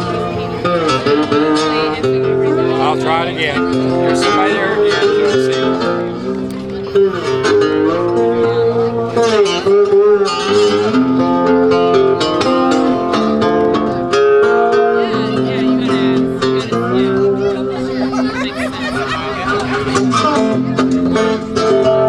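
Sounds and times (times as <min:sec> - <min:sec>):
guitar playing: 0:00.0 - 0:22.0.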